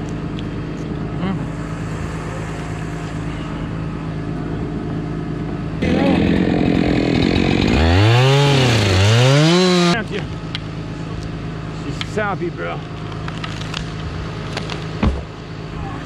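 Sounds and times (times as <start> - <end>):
machine engine running: 0.6 - 10.8
chainsaw revving: 5.8 - 10.0.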